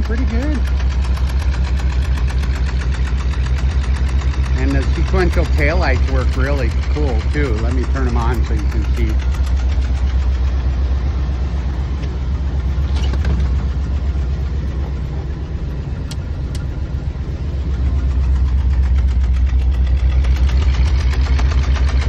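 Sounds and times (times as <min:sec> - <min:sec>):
car engine idling: 0:00.0 - 0:22.0
sharp clicks: 0:15.9 - 0:16.8.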